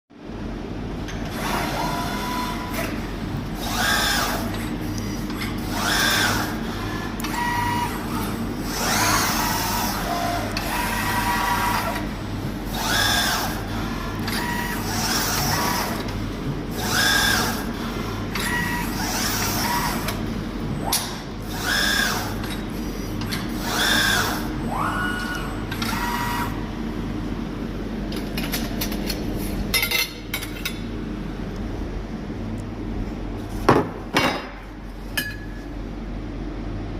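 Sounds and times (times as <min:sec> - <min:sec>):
steady low hum: 0:00.1 - 0:36.9
electric drive motors whining: 0:01.2 - 0:03.0, 0:05.6 - 0:16.2, 0:16.8 - 0:20.2, 0:20.8 - 0:22.5, 0:23.3 - 0:26.7.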